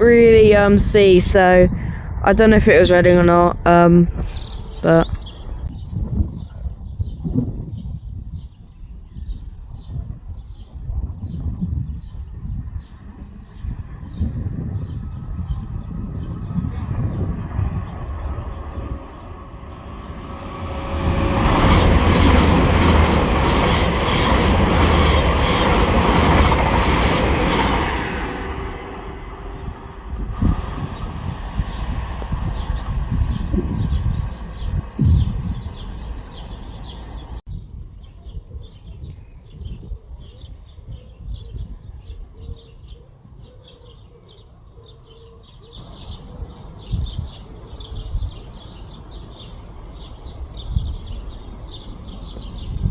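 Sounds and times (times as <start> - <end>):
train rumbling past: 0.0 - 5.7, 12.9 - 37.4, 48.4 - 52.9
birds chirping: 0.0 - 5.8, 13.5 - 37.4, 45.7 - 52.9
heavy knocks of train: 19.8 - 37.4.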